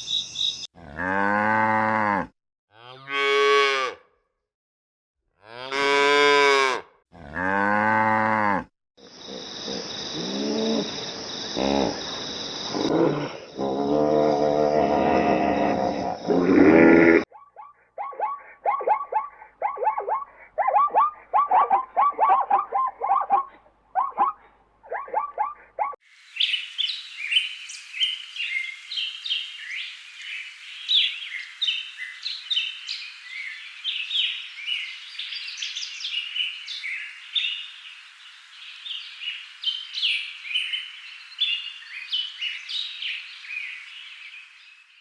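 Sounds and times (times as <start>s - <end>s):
chorus of small birds chirping: 0.0s - 0.7s.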